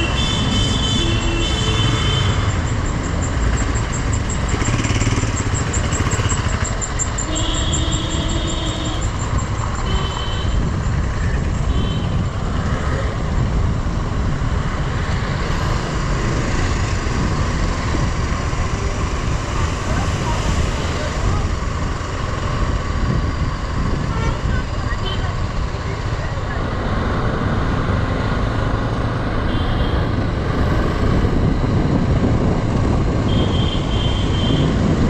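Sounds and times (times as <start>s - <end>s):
motorcycle engine: 0.0s - 35.0s
wind on microphone: 9.9s - 25.0s, 30.2s - 35.0s.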